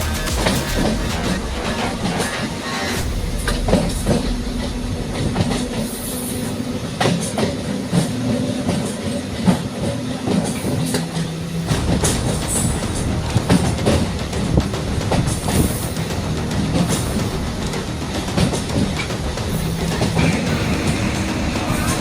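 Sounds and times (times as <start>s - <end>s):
electric train humming: 0.0s - 22.0s.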